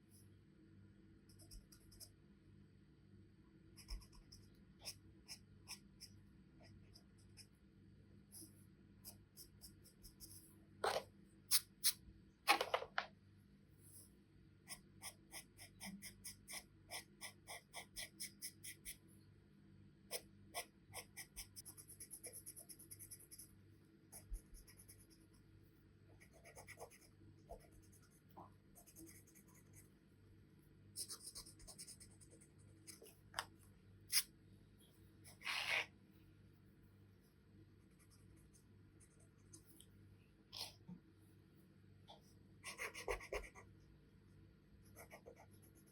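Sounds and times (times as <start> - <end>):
pencil scratching on paper: 3.8 - 6.1, 14.7 - 19.0, 20.1 - 23.5, 26.2 - 29.9, 31.0 - 33.1, 42.6 - 43.7, 44.8 - 45.9.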